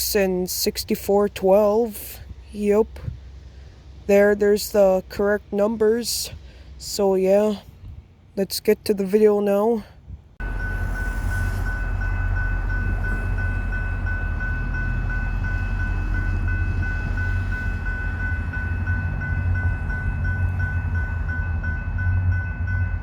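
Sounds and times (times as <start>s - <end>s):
diesel locomotive rumbling: 0.0s - 23.0s
bell ringing: 10.4s - 23.0s.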